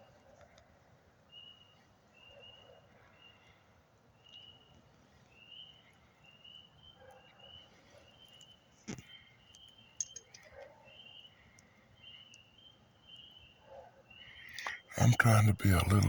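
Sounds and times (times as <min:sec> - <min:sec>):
click: 0:08.3 - 0:10.7.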